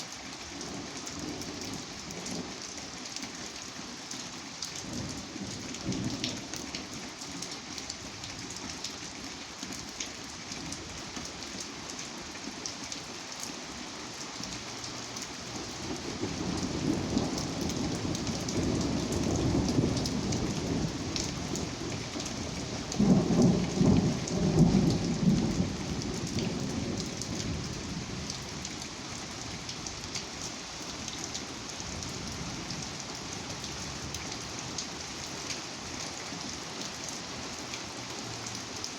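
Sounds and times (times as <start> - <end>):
steady rain falling: 0.0 - 38.9
thunder rumbling: 16.6 - 28.3.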